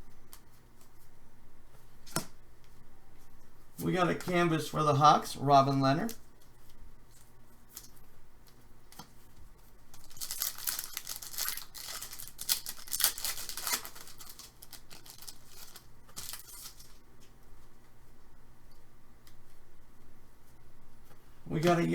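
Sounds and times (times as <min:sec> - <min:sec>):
wrapper tearing and crinkling: 0:10.0 - 0:17.0.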